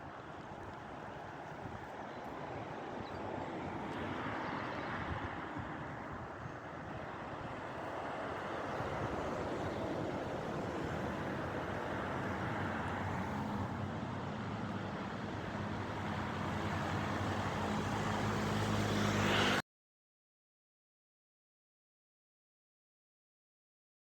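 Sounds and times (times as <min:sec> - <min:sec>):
road traffic noise: 0:00.0 - 0:19.6.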